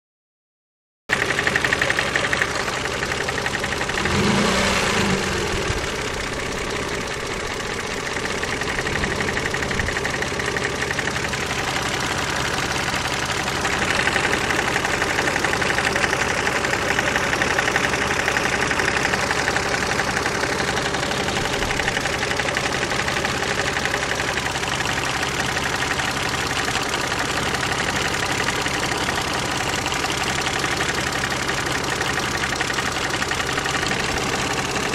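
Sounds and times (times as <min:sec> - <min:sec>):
car engine running: 0:01.2 - 0:34.9.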